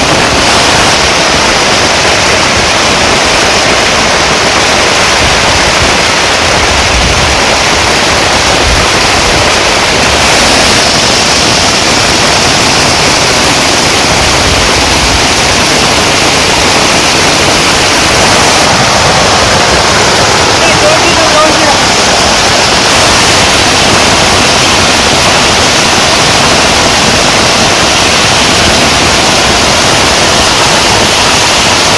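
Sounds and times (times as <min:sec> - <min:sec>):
heavy rain: 0:00.0 - 0:31.9.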